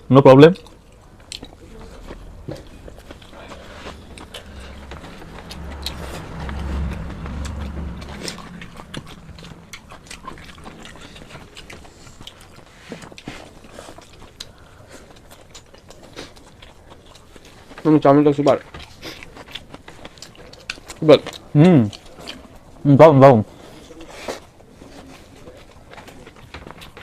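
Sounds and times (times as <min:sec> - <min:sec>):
people chewing and smacking: 0:00.0 - 0:27.0
low hum: 0:00.6 - 0:12.7.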